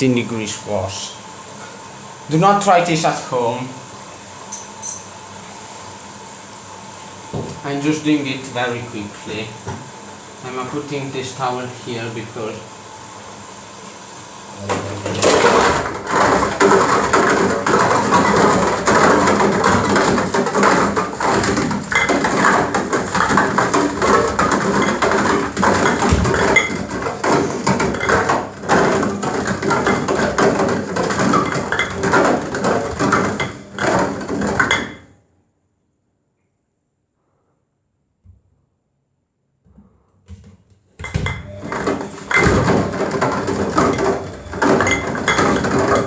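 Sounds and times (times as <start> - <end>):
cans clattering in washing machine: 14.7 - 35.1, 40.3 - 46.0.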